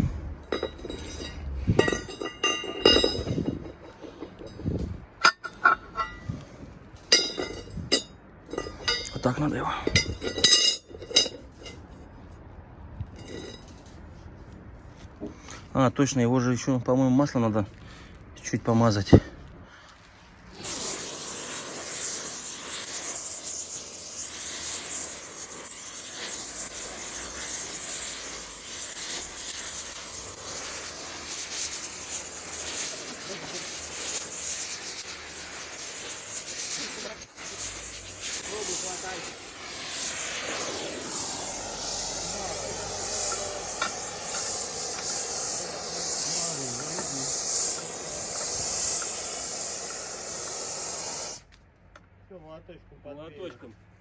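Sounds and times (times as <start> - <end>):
gas cutting torch hissing: 0.0 - 4.5, 20.5 - 51.5.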